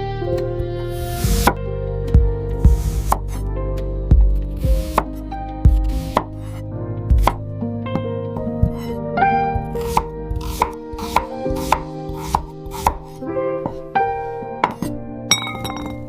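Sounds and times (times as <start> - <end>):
soft background music: 0.0 - 16.0
knife chopping vegetables: 5.8 - 6.6, 7.2 - 7.4, 9.8 - 13.1.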